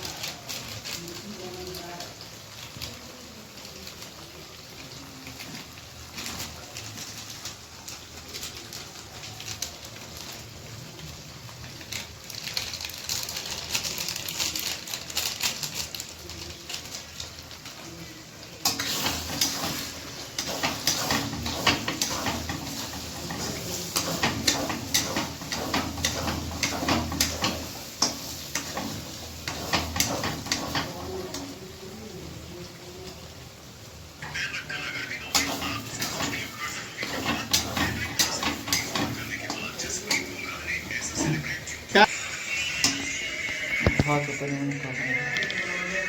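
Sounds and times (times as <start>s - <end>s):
food sizzling in hot oil: 0.0s - 46.0s
metal utensil scraping a pan: 18.6s - 31.6s, 35.2s - 46.0s.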